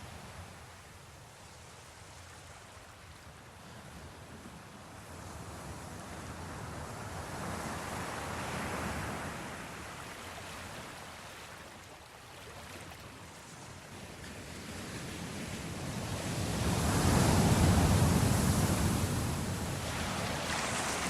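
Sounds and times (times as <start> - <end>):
sea waves washing: 12.6 - 21.0.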